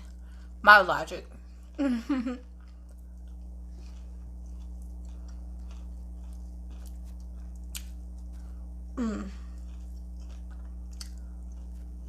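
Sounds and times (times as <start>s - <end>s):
low electrical hum: 0.0s - 12.0s
close-up chewing of food: 2.4s - 12.0s.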